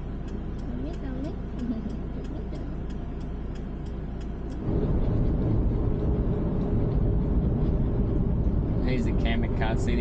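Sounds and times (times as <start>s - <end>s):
van road and engine rumble: 0.0s - 10.0s
light ticks: 0.2s - 4.7s.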